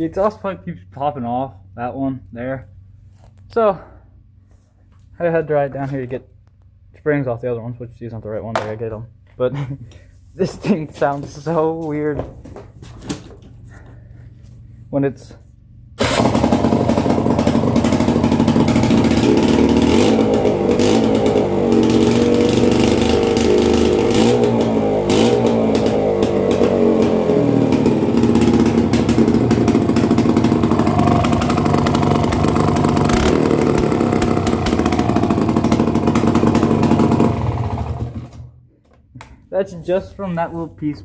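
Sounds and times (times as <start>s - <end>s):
atv engine revving loud: 16.0s - 38.5s.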